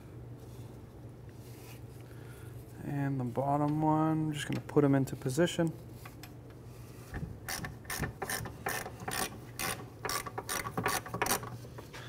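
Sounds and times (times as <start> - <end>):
hand ratchet clicking: 7.4 - 11.8.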